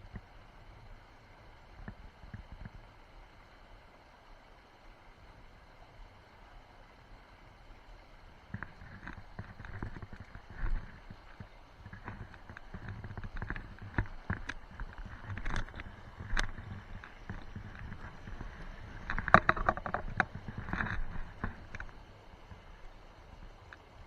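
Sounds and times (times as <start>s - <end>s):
low steady background rush: 0.0s - 24.0s
sharp clicks and knocks: 11.9s - 21.9s.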